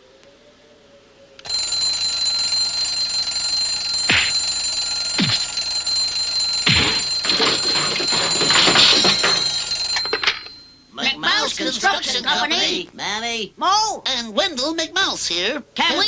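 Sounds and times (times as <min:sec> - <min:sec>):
telephone bell ringing: 0:01.4 - 0:10.9.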